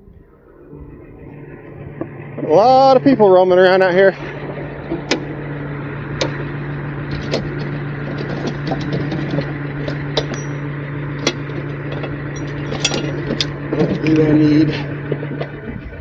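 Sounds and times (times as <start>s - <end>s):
truck engine humming: 0.0s - 16.0s
clicks and rattles: 7.1s - 15.9s.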